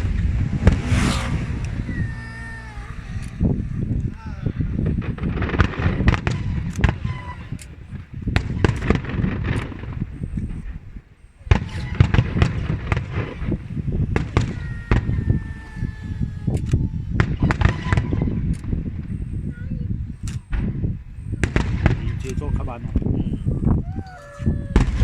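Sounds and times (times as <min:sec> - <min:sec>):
falling whistles: 0:00.0 - 0:07.7, 0:11.2 - 0:20.6, 0:21.2 - 0:25.0
continuous rumble: 0:00.0 - 0:25.0
fireworks bangs: 0:11.4 - 0:18.5.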